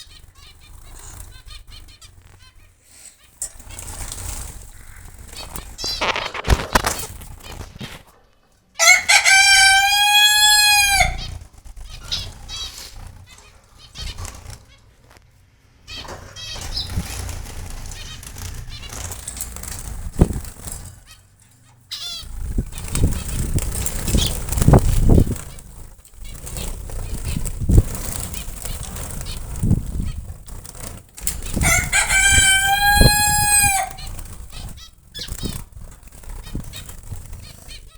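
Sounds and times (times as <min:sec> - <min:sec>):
wings fluttering: 0:00.0 - 0:08.2, 0:08.8 - 0:15.2, 0:15.9 - 0:37.9
loud drawn-out bird call: 0:08.8 - 0:11.4, 0:31.6 - 0:34.2
finches chirping: 0:15.9 - 0:17.2.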